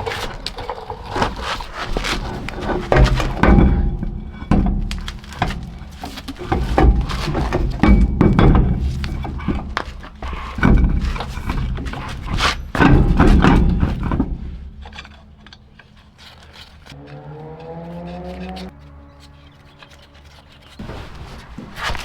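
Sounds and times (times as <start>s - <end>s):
heavy metal thunks and clanks: 0.0s - 17.0s.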